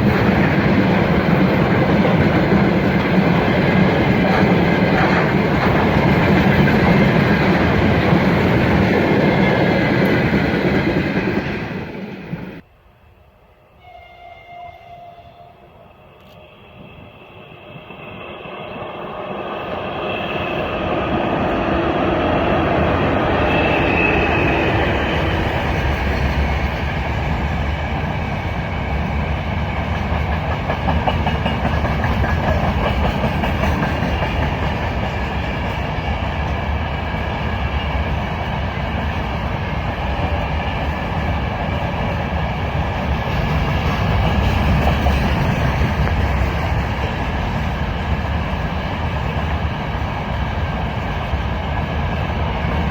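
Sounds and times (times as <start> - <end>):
freight train rumbling past: 0.0 - 52.9.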